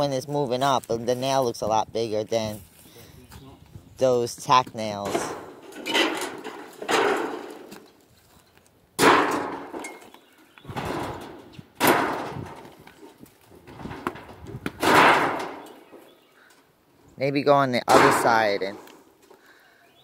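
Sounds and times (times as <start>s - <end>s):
tin roofing banging and crashing: 5.0s - 7.8s, 9.0s - 16.0s, 17.8s - 18.9s.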